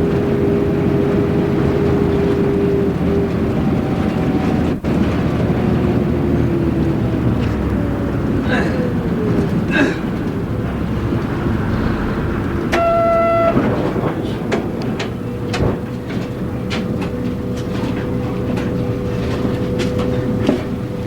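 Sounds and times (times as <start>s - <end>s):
bus engine drone: 0.0s - 21.0s
steady whine: 10.3s - 15.8s
short pitched beep: 12.7s - 13.9s.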